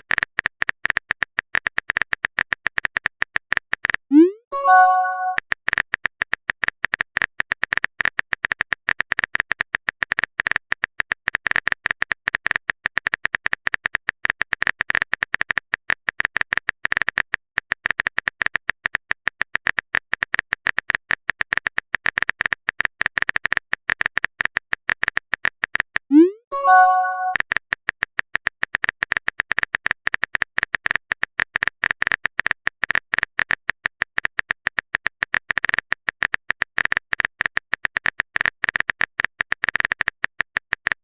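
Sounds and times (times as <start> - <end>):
keyboard typing clicks: 0.1 - 9.4, 19.6 - 41.0.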